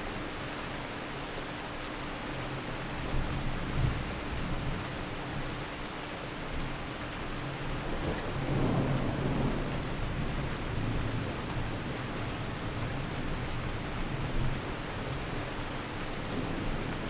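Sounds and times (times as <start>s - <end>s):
steady rain falling: 0.0s - 17.0s
low thunder rumbling: 7.5s - 17.0s.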